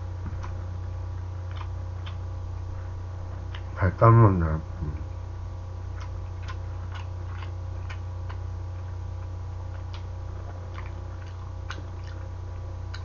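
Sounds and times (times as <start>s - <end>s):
low hum: 0.0s - 13.0s
mouth clicks and smacks chewing: 1.2s - 2.2s, 5.9s - 12.3s.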